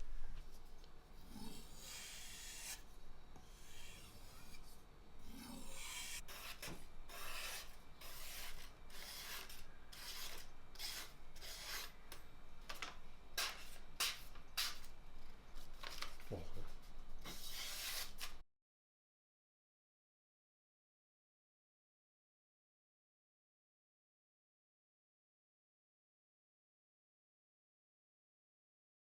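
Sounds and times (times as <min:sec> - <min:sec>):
knife scraping on whetstone: 0:01.2 - 0:12.0, 0:17.2 - 0:18.4.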